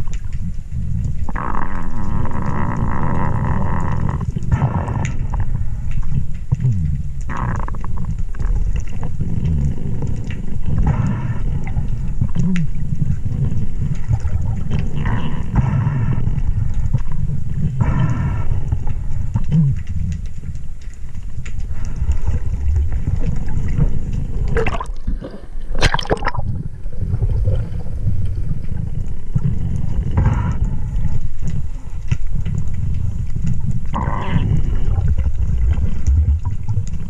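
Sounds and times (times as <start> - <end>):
low rumble of water: 0.0 - 37.0.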